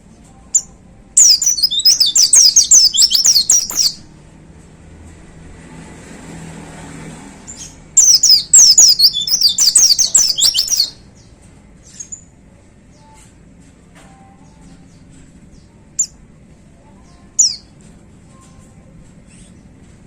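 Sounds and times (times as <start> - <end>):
faint bird chirps: 0.5 - 4.0, 8.0 - 11.0
bird singing falling chirps: 1.2 - 4.0, 8.0 - 11.0.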